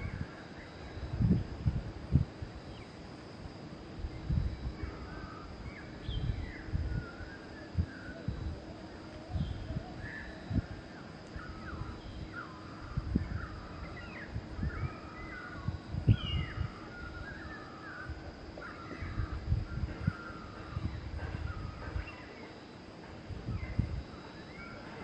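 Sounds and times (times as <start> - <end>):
wild birds calling: 4.8 - 22.7.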